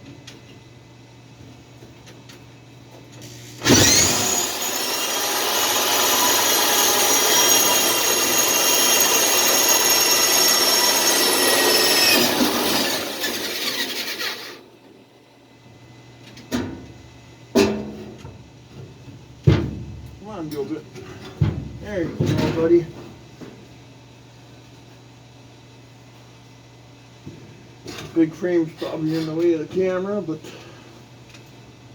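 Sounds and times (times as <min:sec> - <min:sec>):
power drill boring: 0:03.2 - 0:14.6.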